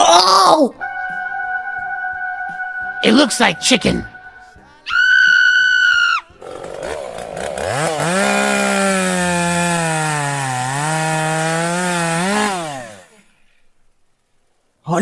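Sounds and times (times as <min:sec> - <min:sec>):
high whistle-like tone: 0:00.7 - 0:06.2
chainsaw running: 0:06.4 - 0:13.3.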